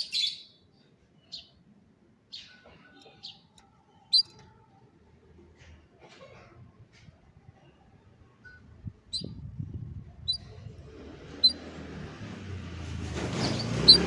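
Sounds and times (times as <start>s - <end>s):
canary chirping: 4.1s - 4.4s, 10.2s - 10.7s, 11.3s - 11.7s, 13.2s - 14.0s.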